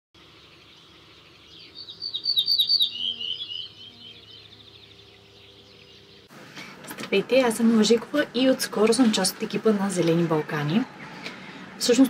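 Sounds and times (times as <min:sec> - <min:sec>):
songbird chirping: 0:00.2 - 0:06.4.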